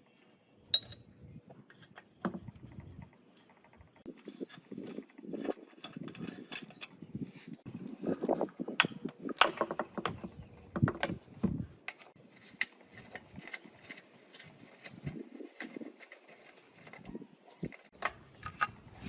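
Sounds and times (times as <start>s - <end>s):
hand tools clicking and knocking on metal: 0.8s - 1.0s.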